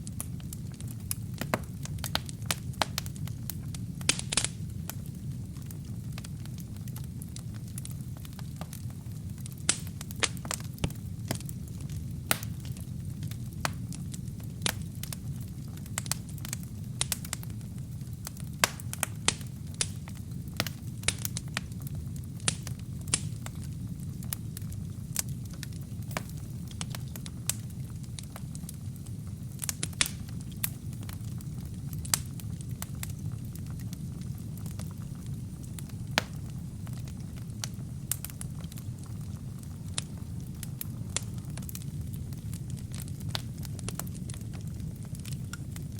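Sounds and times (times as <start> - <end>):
fire crackling and popping: 0.0 - 45.9
fire rumbling: 0.0 - 45.9.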